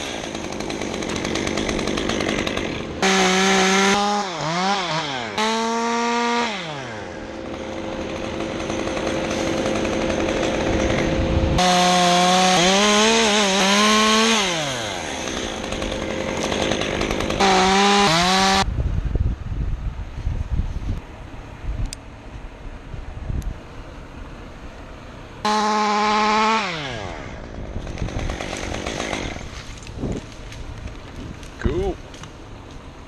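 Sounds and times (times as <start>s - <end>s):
chainsaw revving and cutting: 0.0s - 18.7s, 25.4s - 30.0s.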